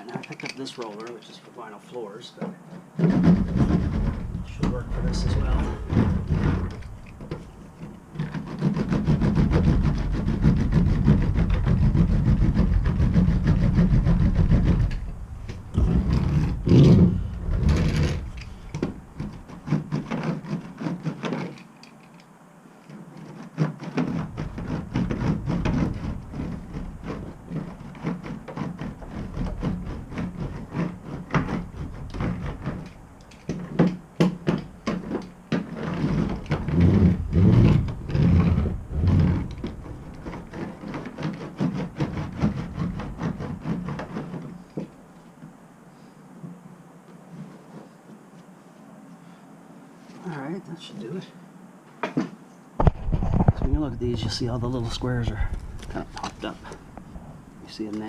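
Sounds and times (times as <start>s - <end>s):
roller knocks and clicks: 0.0s - 45.6s
hand roller rolling over metal panel: 2.4s - 22.2s, 22.8s - 45.0s.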